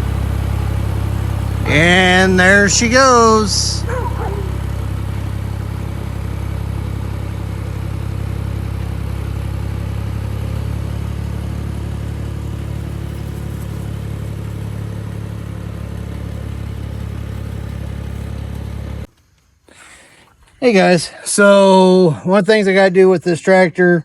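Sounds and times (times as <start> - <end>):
tractor diesel engine running: 0.0 - 19.2.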